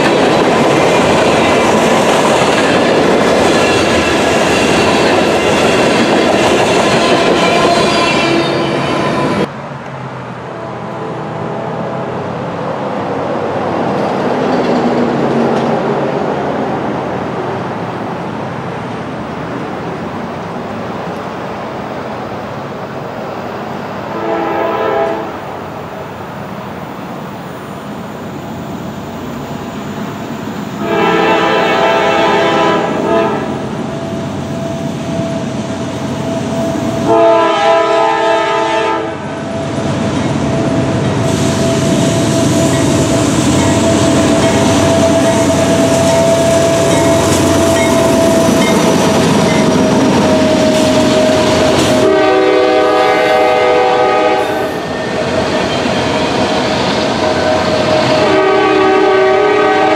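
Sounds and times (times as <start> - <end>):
train rumbling and rail clatter: 0.0 - 59.9
locomotive air horn blasts: 6.9 - 9.5, 24.1 - 25.4, 30.8 - 33.6, 37.0 - 39.2, 51.2 - 54.8, 57.4 - 59.9.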